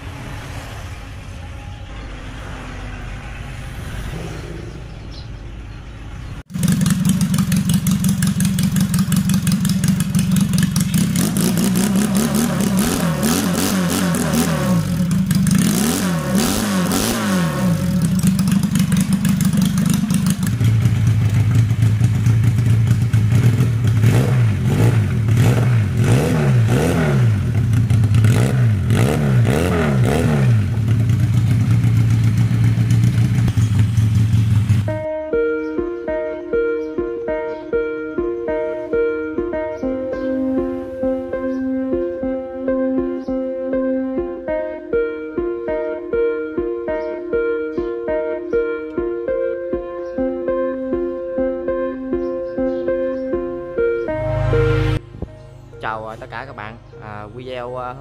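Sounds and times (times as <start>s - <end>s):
motorcycle engine revving and idling: 6.2s - 35.1s.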